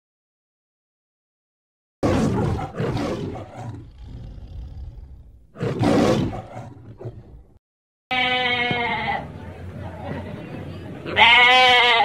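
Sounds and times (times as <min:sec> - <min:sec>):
lioness roaring: 0:02.0 - 0:07.5.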